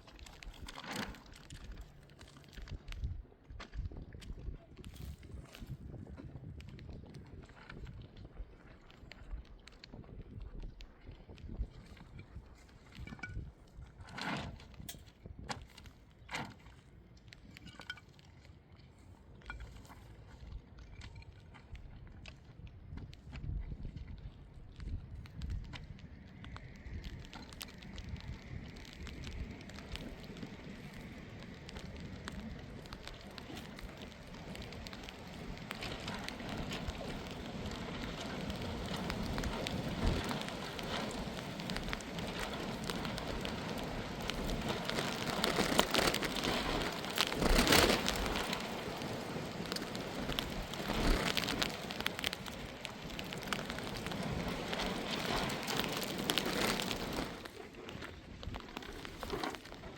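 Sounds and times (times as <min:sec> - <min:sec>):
heavy rain falling: 0:28.6 - 0:57.4.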